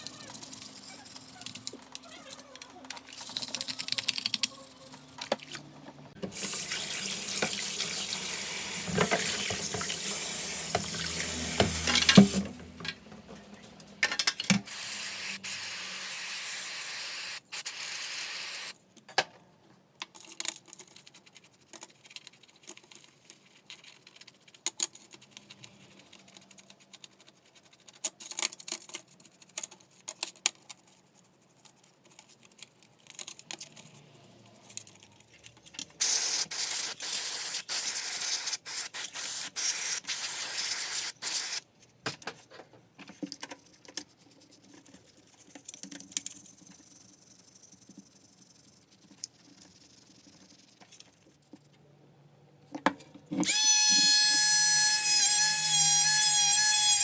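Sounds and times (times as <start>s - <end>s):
small parts clicking and knocking: 0.0s - 5.5s, 19.0s - 36.2s, 41.3s - 51.8s
water running from a tap: 6.3s - 12.8s.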